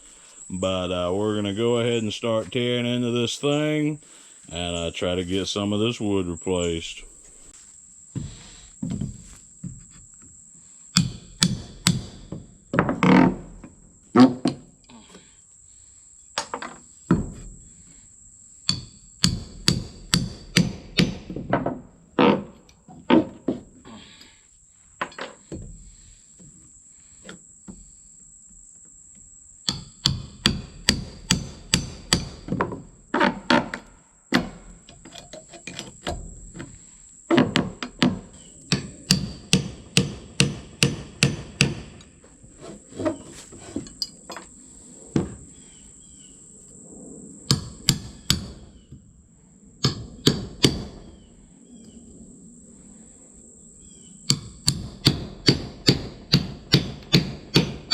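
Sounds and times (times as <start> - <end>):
high insect whine: 0.0 - 57.9
hammer striking wooden boards: 11.0 - 13.3, 18.7 - 21.7, 29.7 - 34.8, 37.4 - 42.0, 49.8 - 51.0, 54.3 - 57.9.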